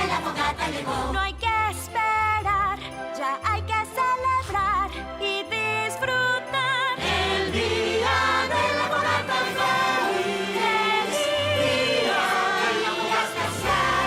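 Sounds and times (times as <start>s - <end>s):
choir singing: 0.0s - 1.3s, 6.9s - 14.0s.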